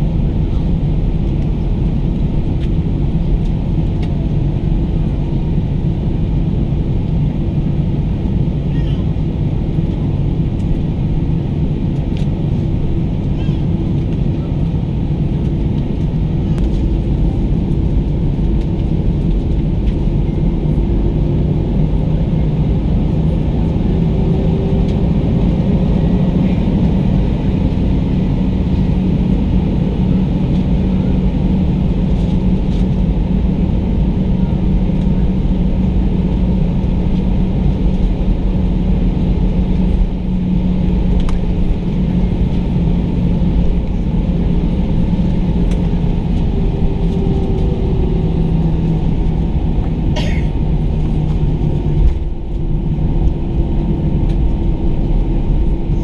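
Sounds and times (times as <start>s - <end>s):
jet engines heard from cabin: 0.0s - 56.0s.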